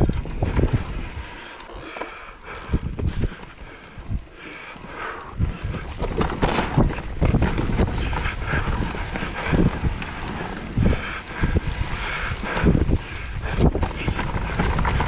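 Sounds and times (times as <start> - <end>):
wind buffeting microphone: 0.0 - 1.4, 2.5 - 15.0
bike tyre rumble: 0.0 - 15.0
bike knocks and rattles: 5.6 - 15.0.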